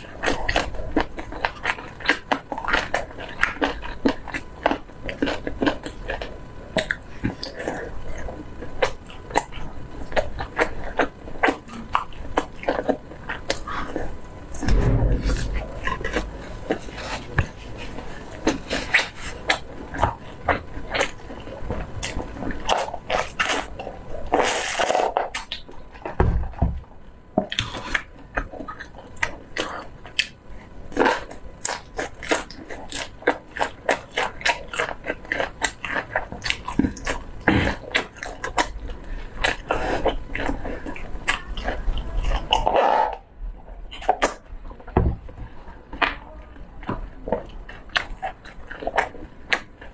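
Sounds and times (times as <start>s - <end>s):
chewing with wet mouth clicks: 0.0s - 14.0s, 27.4s - 43.0s, 47.3s - 49.9s.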